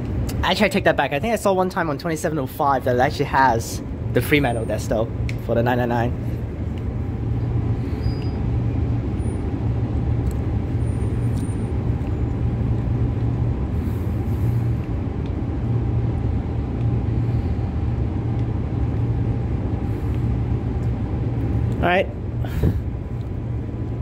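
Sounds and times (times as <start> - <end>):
faint steady whine: 0.0 - 24.0.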